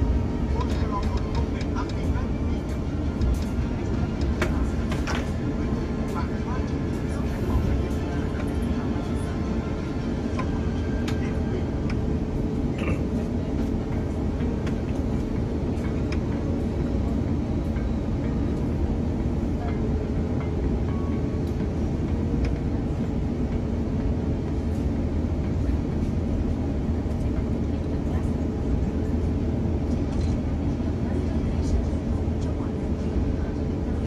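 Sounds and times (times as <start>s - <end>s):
airplane cabin engine rumble: 0.0s - 34.0s.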